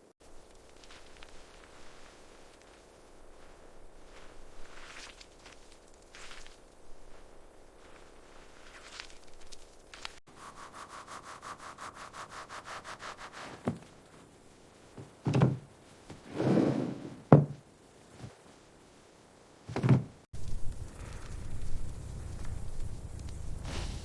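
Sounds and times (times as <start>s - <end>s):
fast rasping strokes: 9.9s - 13.6s.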